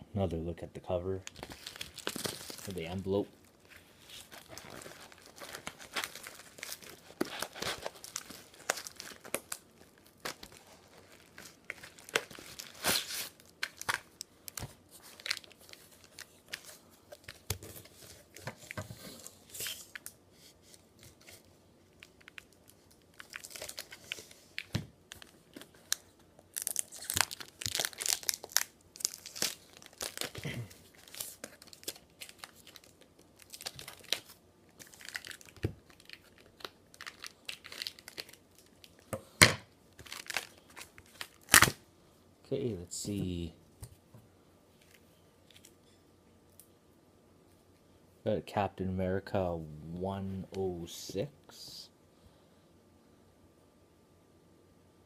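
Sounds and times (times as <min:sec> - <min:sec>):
packaging tearing and crumpling: 0:01.3 - 0:03.2, 0:04.0 - 0:20.2, 0:21.9 - 0:39.1, 0:40.0 - 0:41.8.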